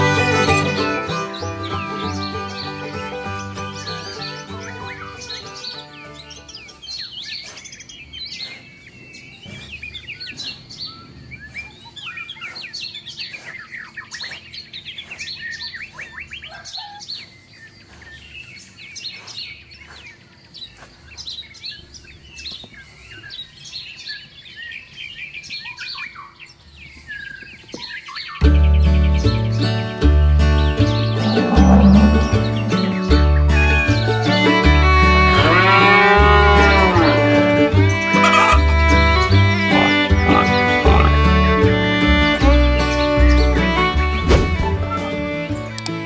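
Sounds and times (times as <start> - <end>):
songbirds chirping: 0.0 - 46.0.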